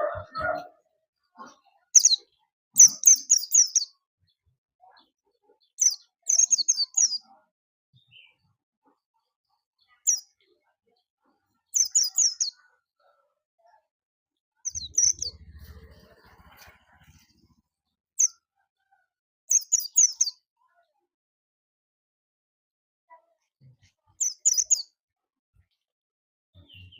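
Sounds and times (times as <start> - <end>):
bird chirping high bursts: 14.7 - 15.4
faint low rumble: 14.7 - 17.6.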